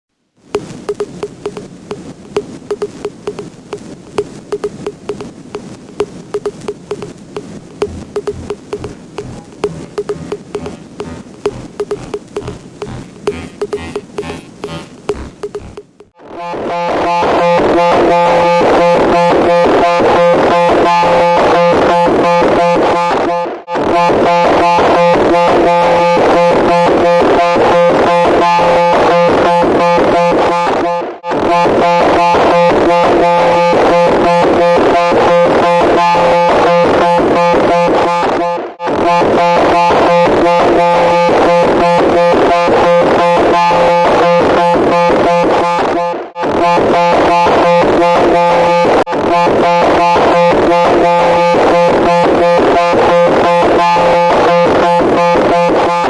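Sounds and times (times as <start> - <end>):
harsh electronic buzzing tone: 0.6 - 16.1.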